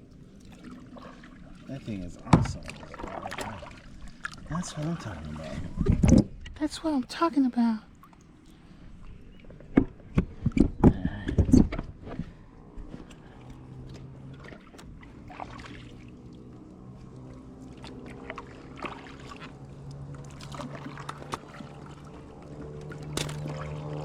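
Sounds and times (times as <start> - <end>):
paddle strokes in water: 0.0 - 6.5, 7.9 - 24.0
paddle knocking on hull: 2.2 - 4.4.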